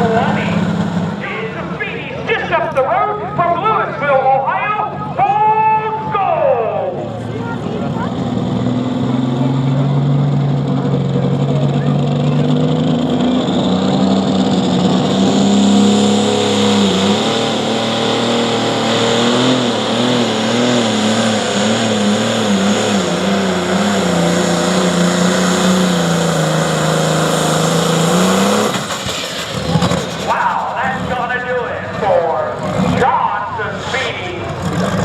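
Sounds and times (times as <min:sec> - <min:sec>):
diesel engine running under load: 0:00.0 - 0:35.0
high whine: 0:21.9 - 0:34.5.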